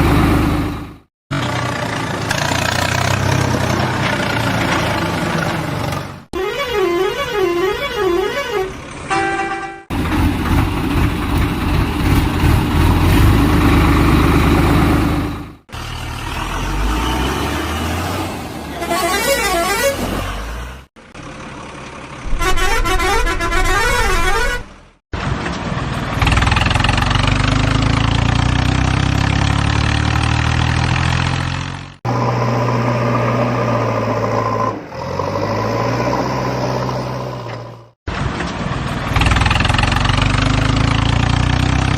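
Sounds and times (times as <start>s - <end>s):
steady horn-like sound: 22.3s - 24.8s.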